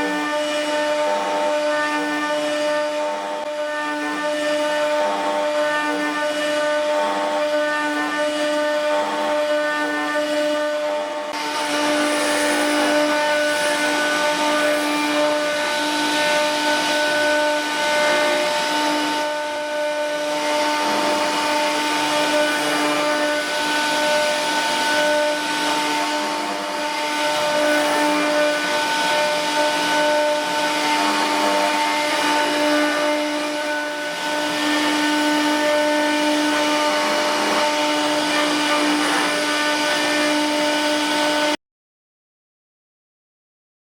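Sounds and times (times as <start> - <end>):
router spindle whining: 0.0 - 41.6.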